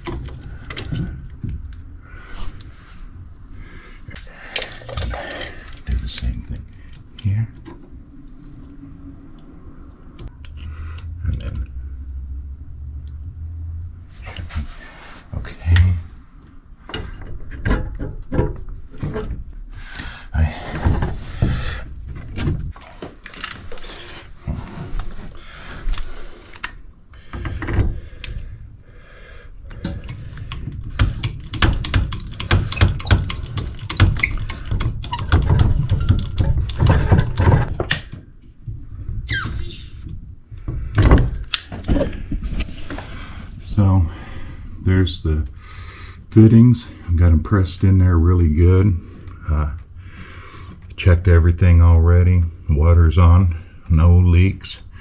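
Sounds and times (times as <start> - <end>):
short rising squeak: 39.3 - 40.0.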